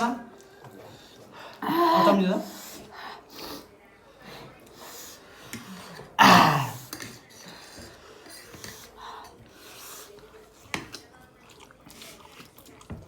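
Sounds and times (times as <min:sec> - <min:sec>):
eating sounds: 0:04.8 - 0:13.0.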